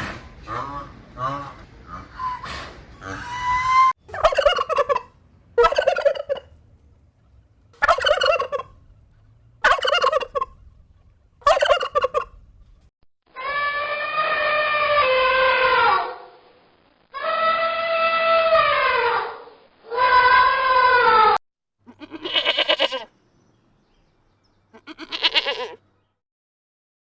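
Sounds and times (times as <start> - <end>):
turkey gobbling: 4.1 - 6.6, 7.8 - 8.8, 9.6 - 10.6, 11.4 - 12.4.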